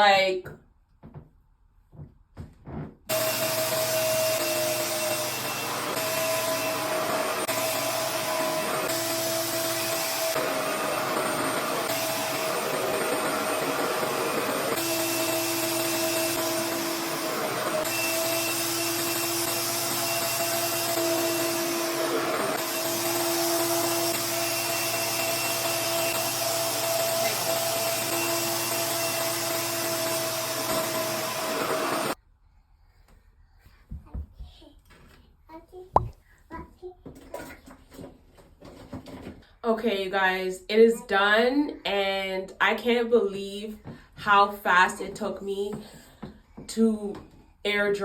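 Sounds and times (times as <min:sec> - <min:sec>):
hair dryer suction motor: 0:03.1 - 0:32.2.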